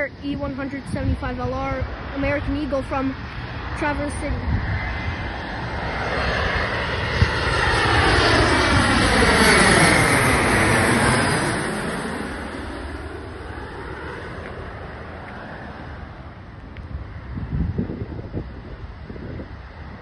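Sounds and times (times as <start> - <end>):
jet passing low overhead: 0.0 - 20.0.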